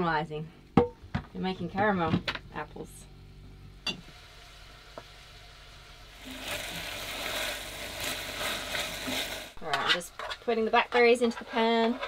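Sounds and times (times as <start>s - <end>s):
apple slices sizzling in a pot: 3.8s - 12.0s.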